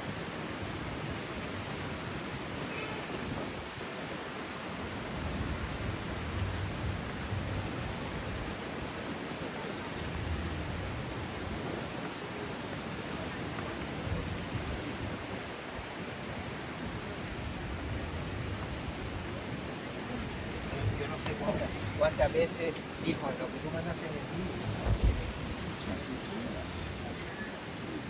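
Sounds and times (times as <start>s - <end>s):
strong wind buffeting microphone: 4.7s - 9.2s, 10.0s - 23.6s, 24.3s - 27.2s.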